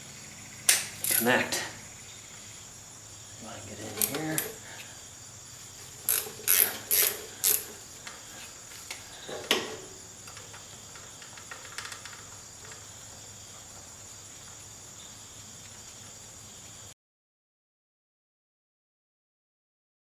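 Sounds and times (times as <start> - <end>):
faint steady hiss: 0.0 - 17.0
hand tools clinking on metal: 0.7 - 1.7, 3.7 - 4.9, 6.0 - 8.2.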